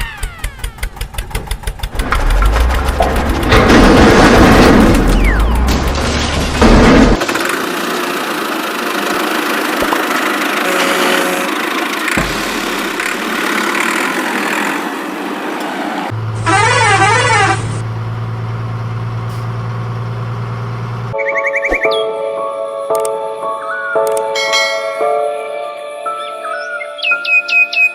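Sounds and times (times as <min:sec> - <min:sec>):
cartoon engine rush: 0:00.0 - 0:18.2
warbling siren-like horn: 0:10.6 - 0:11.8, 0:16.3 - 0:17.8.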